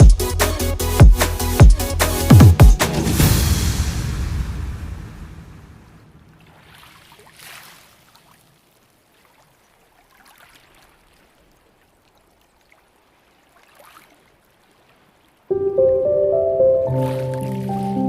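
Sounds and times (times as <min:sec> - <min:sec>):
faint wash of sea water: 0:03.0 - 0:15.6, 0:16.6 - 0:18.0
water splashing: 0:06.0 - 0:15.5, 0:16.9 - 0:18.0.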